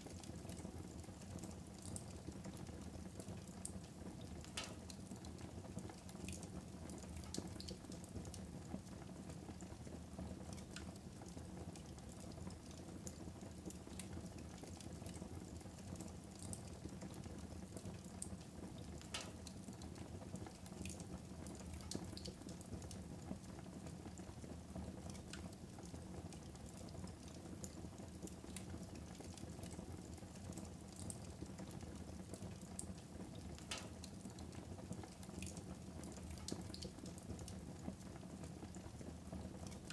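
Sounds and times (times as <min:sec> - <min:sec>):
fire crackling and popping: 0:03.1 - 0:08.4, 0:18.0 - 0:23.0, 0:32.5 - 0:37.6.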